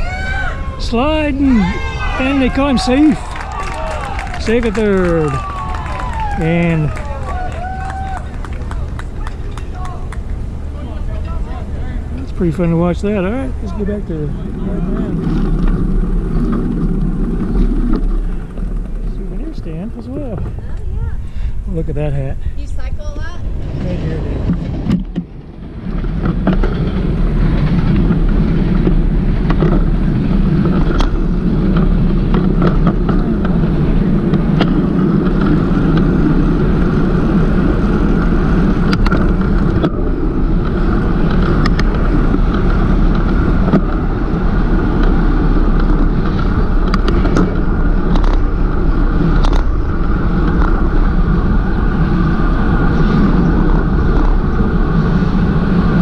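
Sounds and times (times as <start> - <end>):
road and wind rushing: 0.0 - 56.0
bicycle clicks and knocks: 24.5 - 55.0.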